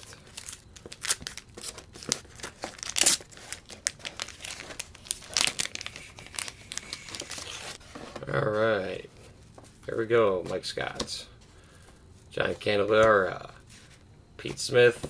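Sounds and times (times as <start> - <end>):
wax paper wrapper crinkling and tearing: 0.0 - 7.8.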